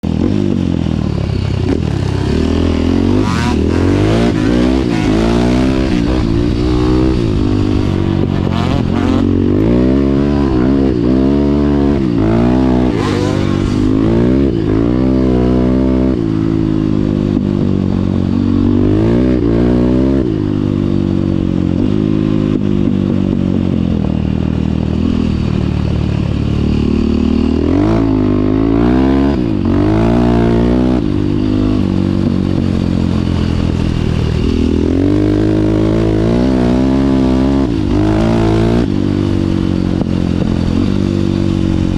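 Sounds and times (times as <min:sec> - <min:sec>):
dirt bike engine revving: 0:00.1 - 0:17.8, 0:26.6 - 0:41.9.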